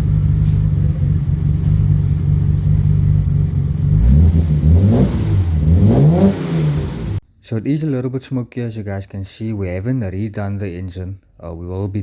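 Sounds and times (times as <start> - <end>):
car engine idling and revving: 0.0 - 7.2.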